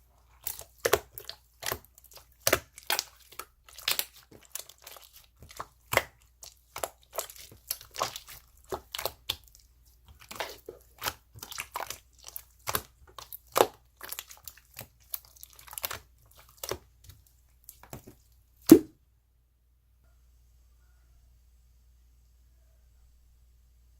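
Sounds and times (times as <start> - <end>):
crunching and crinkling handling: 0.0 - 18.4.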